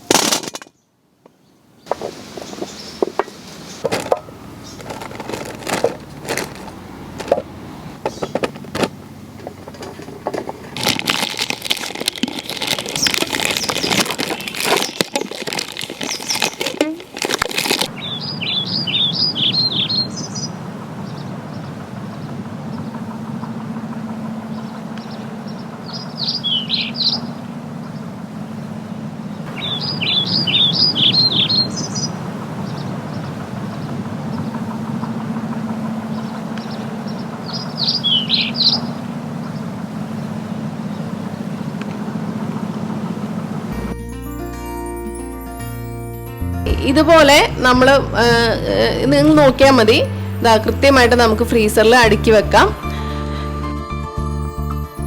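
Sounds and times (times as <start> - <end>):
songbird singing: 0.7 - 10.9, 12.1 - 43.9, 46.6 - 55.0
sharp knocks and clicks: 1.9 - 10.6
plastic bags crinkling: 3.8 - 7.4, 8.2 - 18.0.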